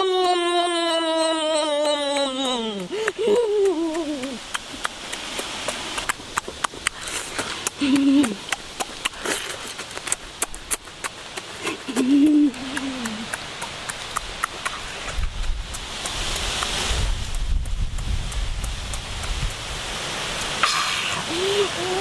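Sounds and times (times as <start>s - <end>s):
falling voice-like tone: 21.0s - 22.0s.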